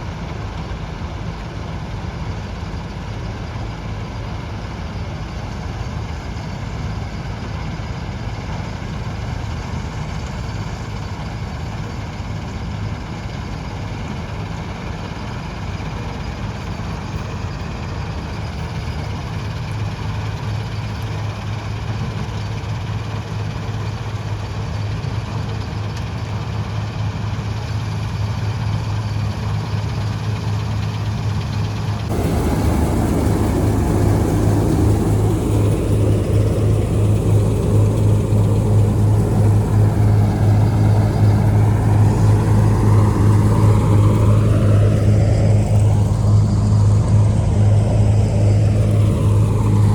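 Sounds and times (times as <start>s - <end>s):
combine harvester diesel engine drone: 0.0s - 49.9s
rushing noise: 32.1s - 49.9s.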